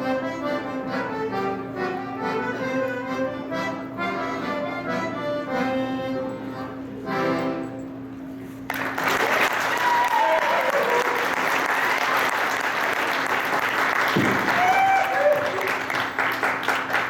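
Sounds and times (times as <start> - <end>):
accordion folk dance music: 0.0 - 8.2
audience applause: 8.7 - 17.0.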